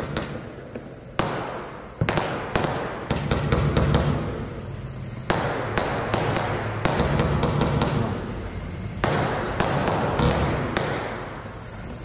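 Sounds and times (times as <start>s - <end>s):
fireworks shots and bursts: 0.0s - 12.0s.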